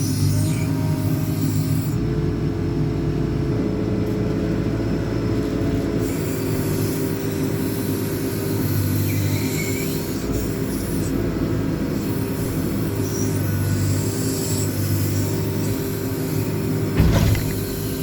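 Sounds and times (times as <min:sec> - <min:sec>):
diesel engine drone: 0:00.0 - 0:18.0
hydraulic whine: 0:05.4 - 0:18.0.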